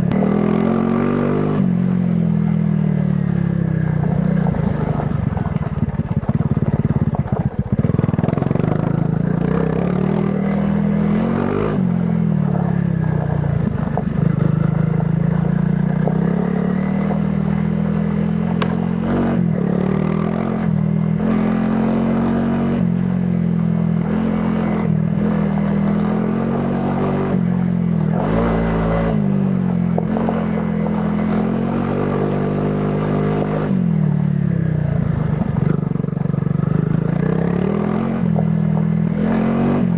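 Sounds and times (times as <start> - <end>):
motorcycle engine revving: 0.0 - 39.9
bike knocks and rattles: 4.1 - 8.8, 18.5 - 19.0.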